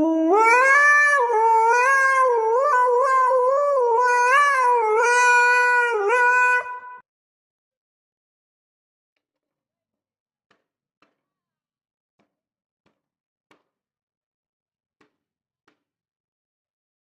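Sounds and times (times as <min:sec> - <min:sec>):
dog howling: 0:00.0 - 0:07.0.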